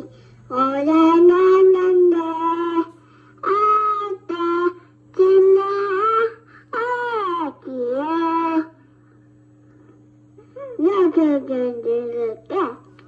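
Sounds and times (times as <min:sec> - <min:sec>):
toddler sing-song voice: 0:00.0 - 0:08.8
steady low hum: 0:00.0 - 0:13.0.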